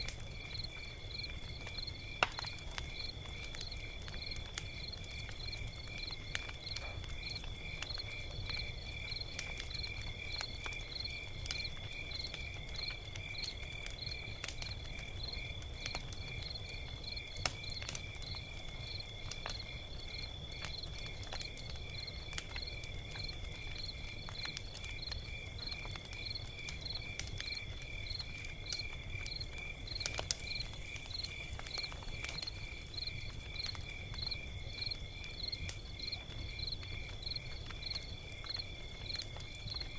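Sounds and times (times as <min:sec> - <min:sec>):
log fire crackling: 0:00.0 - 0:39.9
insect chirping: 0:21.8 - 0:39.2.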